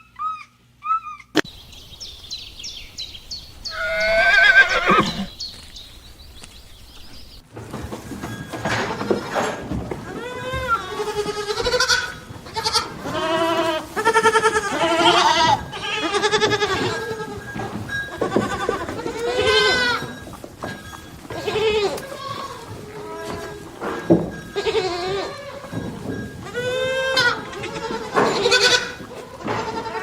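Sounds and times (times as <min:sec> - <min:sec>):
goats bleating: 0:03.4 - 0:05.9, 0:08.8 - 0:30.0.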